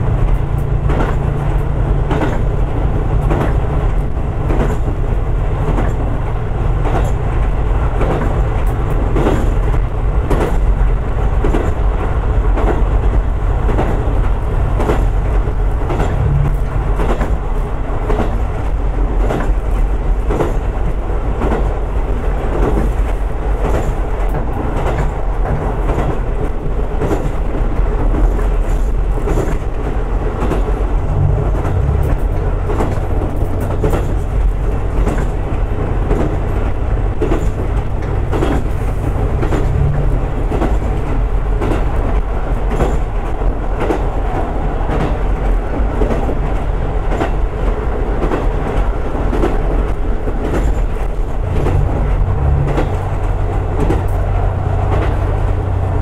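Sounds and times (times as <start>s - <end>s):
railcar engine rumbling: 0.0s - 56.0s
wheels clicking over rail joints: 0.0s - 56.0s.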